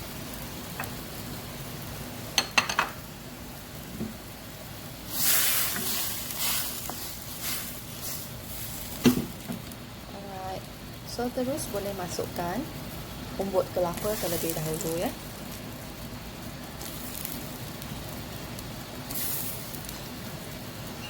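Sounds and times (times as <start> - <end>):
sizzling hiss: 0.0 - 21.0
cookware knock: 2.4 - 3.0.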